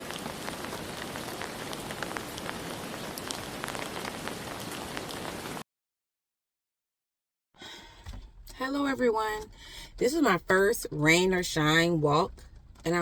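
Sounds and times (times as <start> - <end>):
light rain hissing: 0.0 - 5.6.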